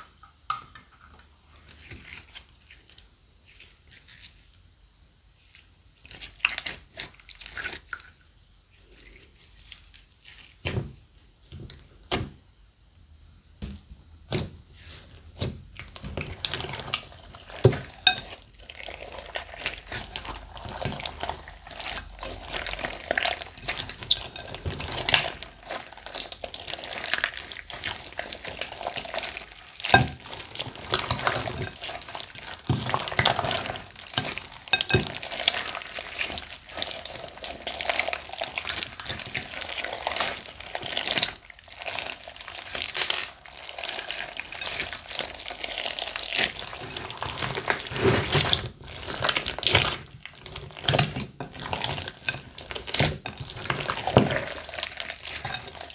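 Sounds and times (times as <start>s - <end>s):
slime squelching by hand: 5.4s - 10.8s, 14.3s - 55.9s.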